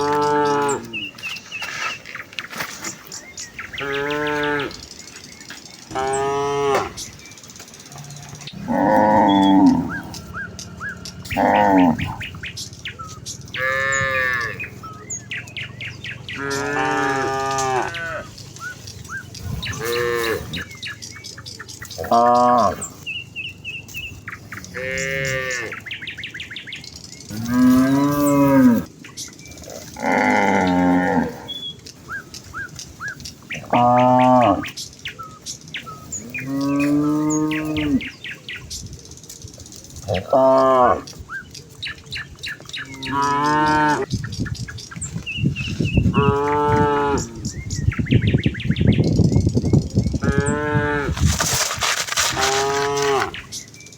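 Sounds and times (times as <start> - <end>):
cows mooing: 0.0 - 1.3, 3.8 - 4.9, 5.9 - 7.1, 7.9 - 12.4, 13.5 - 14.9, 16.2 - 18.4, 19.6 - 20.7, 21.9 - 23.0, 24.6 - 25.8, 27.3 - 28.9, 29.6 - 31.6, 33.6 - 34.7, 36.2 - 38.2, 40.1 - 41.1, 42.7 - 44.1, 46.1 - 47.5, 50.2 - 51.4, 52.3 - 53.5.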